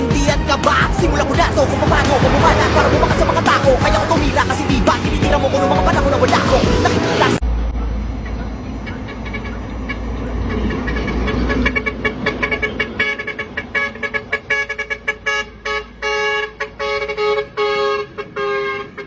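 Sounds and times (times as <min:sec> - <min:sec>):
heavy vehicle rumble: 0:00.0 - 0:19.0
truck horn short toots: 0:08.8 - 0:19.0.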